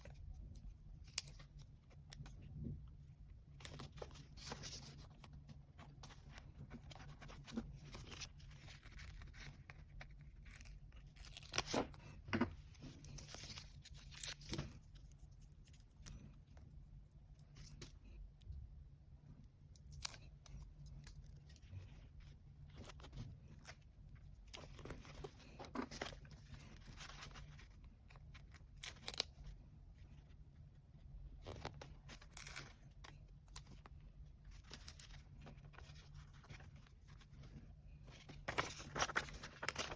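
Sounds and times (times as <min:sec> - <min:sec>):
paper rustling: 0:03.6 - 0:15.2, 0:24.5 - 0:29.4, 0:34.5 - 0:39.9.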